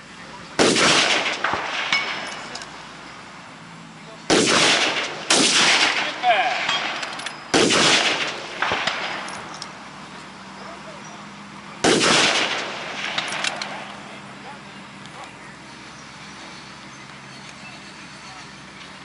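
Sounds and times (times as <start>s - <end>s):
rifle shots with echo: 0.6s - 2.6s, 4.3s - 9.5s, 11.8s - 14.1s.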